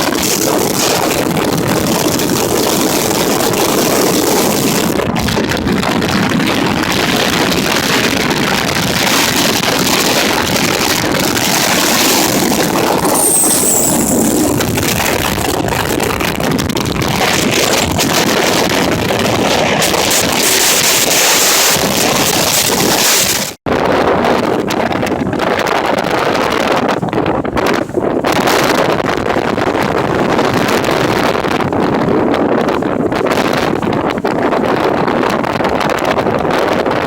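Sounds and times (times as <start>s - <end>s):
strong wind rushing: 10.9s - 20.4s
faint high wind whistle: 12.3s - 15.7s.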